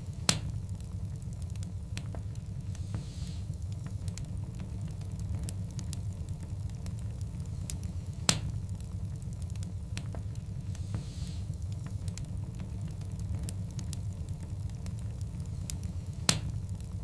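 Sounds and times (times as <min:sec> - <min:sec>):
sharp fire crackles: 0:00.0 - 0:17.0
wood logs burning in fireplace: 0:00.0 - 0:17.0
loud pop of fire: 0:00.2 - 0:00.6, 0:07.7 - 0:08.6, 0:15.7 - 0:16.6.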